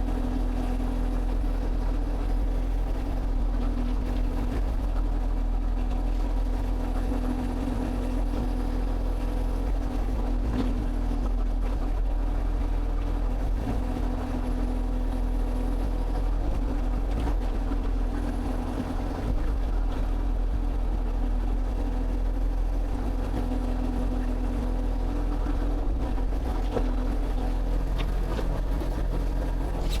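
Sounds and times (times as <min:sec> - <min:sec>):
excavator engine droning: 0:00.0 - 0:30.0.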